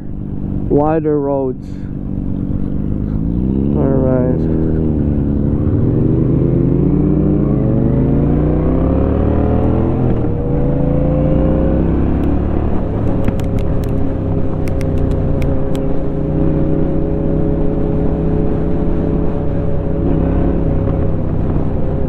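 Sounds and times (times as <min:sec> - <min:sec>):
motorcycle engine accelerating: 0:00.0 - 0:22.0
sharp clicks: 0:13.0 - 0:15.9.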